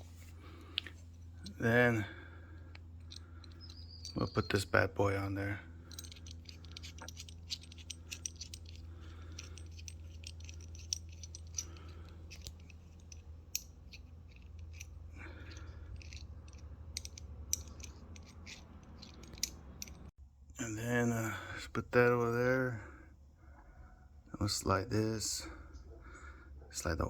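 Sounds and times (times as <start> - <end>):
steady low hum: 0.0 - 27.0
small metal parts clicking and scraping: 0.6 - 20.1.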